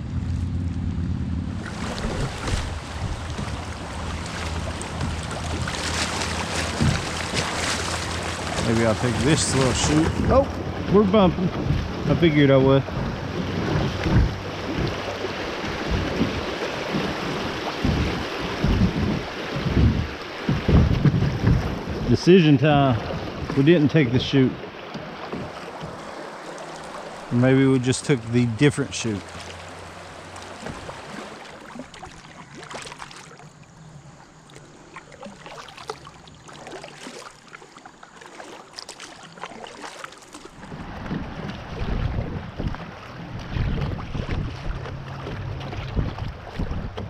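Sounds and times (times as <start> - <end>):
wind gusts on microphone: 0.0 - 24.6, 40.6 - 47.0
river water rushing: 1.4 - 46.9
paddle splashes and knocks: 1.6 - 47.0.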